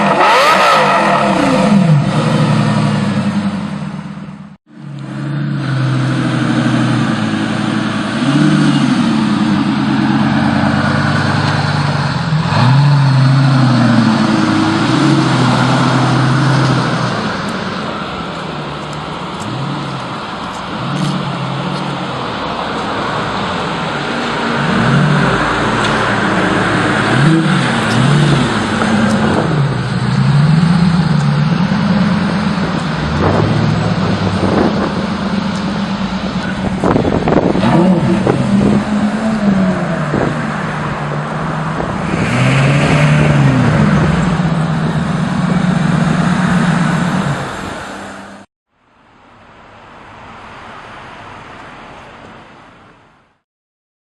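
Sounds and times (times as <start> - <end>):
sports car engine revving: 0.0 - 4.0, 24.5 - 47.9
exhaust cracks: 24.7 - 47.8.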